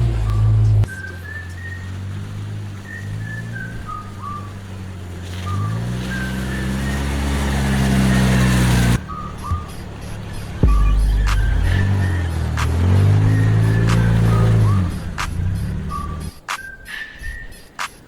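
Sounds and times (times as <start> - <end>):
person whistling a tune: 0.3 - 1.9, 2.8 - 4.6, 5.4 - 7.3, 9.0 - 18.0
low steady drone: 10.6 - 12.4.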